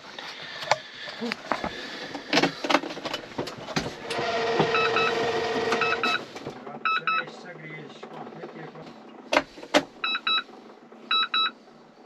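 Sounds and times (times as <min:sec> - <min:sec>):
dashboard warning beeps: 0:04.6 - 0:07.4, 0:10.0 - 0:10.5, 0:11.1 - 0:11.6.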